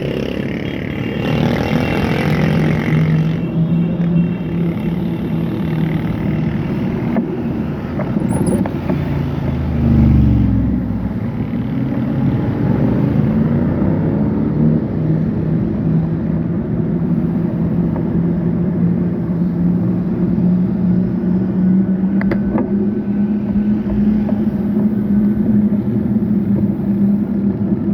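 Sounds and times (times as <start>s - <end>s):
road traffic: 0.0s - 27.9s.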